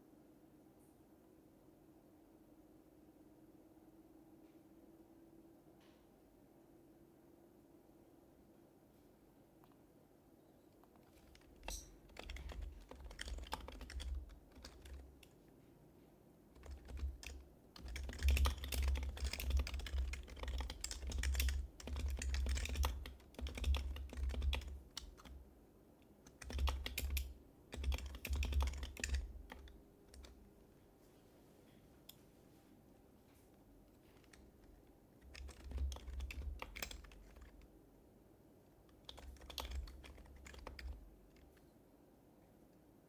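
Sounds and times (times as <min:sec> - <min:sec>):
soft muffled keyboard typing: 0:10.7 - 0:15.7, 0:16.5 - 0:30.6, 0:33.3 - 0:37.9, 0:38.7 - 0:42.9.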